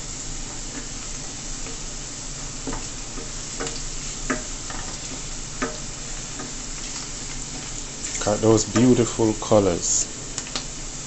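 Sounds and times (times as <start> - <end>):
food sizzling in a pan: 0.0 - 11.0
wooden spoon stirring: 2.6 - 9.2
spoon knocking against pan: 2.7 - 4.5, 5.6 - 6.6.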